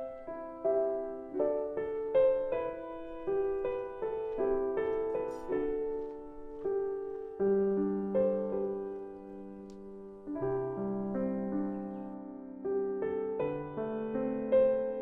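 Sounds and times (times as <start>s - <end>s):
soft solo piano music: 0.0s - 15.0s.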